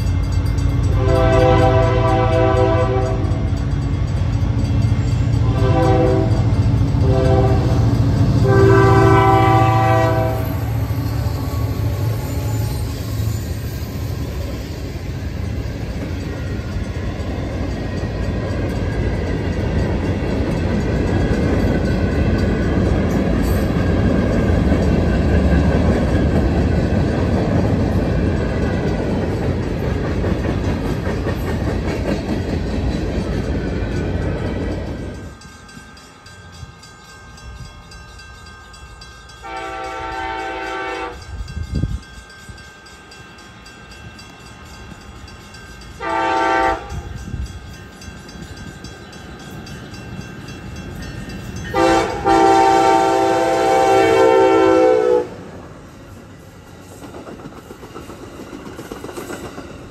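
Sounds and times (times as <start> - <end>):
train passing with rumble: 0.0 - 59.9
train horn blast: 0.9 - 3.5, 5.4 - 10.6, 39.4 - 41.3, 46.0 - 47.2, 51.7 - 55.5.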